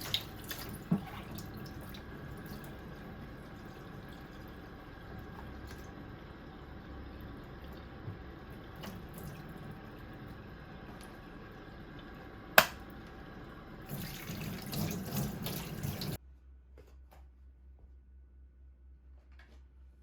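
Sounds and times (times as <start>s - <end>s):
water running and dripping: 0.0s - 12.3s, 13.8s - 16.2s.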